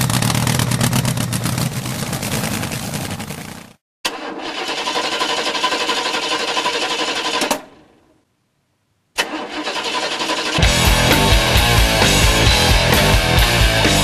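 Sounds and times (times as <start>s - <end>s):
car engine running rough: 0.0s - 3.8s, 10.2s - 14.0s.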